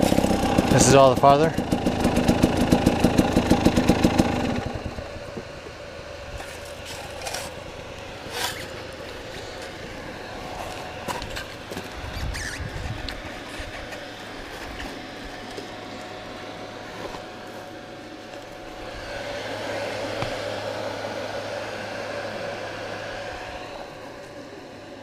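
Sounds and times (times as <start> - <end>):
dirt bike engine idling: 0.0 - 20.8
scraping and clatter on rocks: 6.4 - 7.6.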